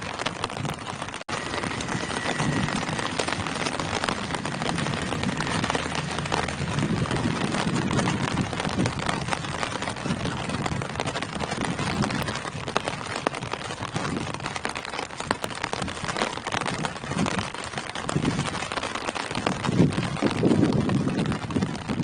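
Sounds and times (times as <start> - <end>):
rain on foliage: 0.0 - 22.0
low rumble: 1.3 - 12.4.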